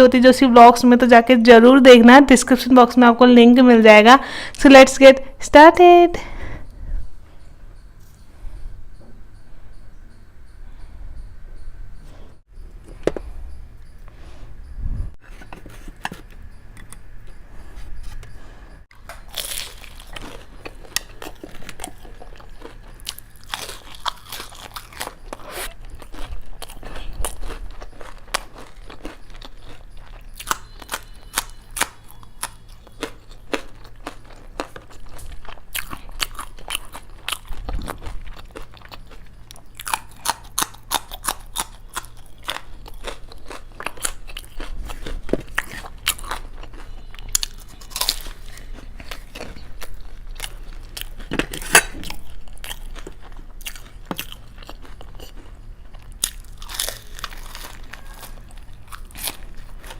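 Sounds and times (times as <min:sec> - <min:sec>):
steady low hum: 0:00.0 - 0:59.9
crunching and chewing food: 0:12.0 - 0:59.9.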